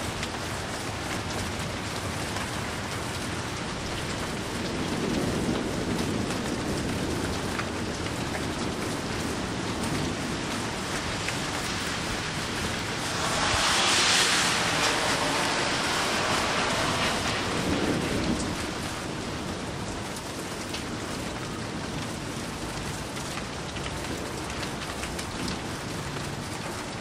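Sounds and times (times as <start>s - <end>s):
heavy rain: 0.0s - 27.0s
distant thunder rumble: 3.8s - 20.1s.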